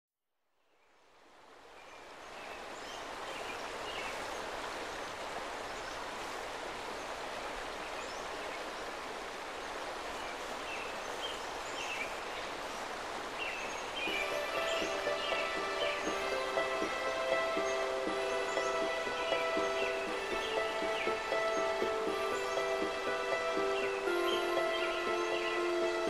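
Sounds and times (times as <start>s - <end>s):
running water: 1.1s - 26.0s
music: 14.1s - 26.0s.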